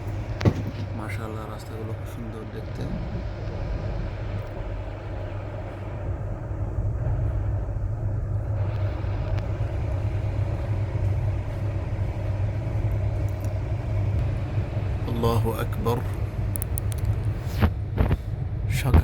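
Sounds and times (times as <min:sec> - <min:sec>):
moving train rumble: 0:00.0 - 0:19.0.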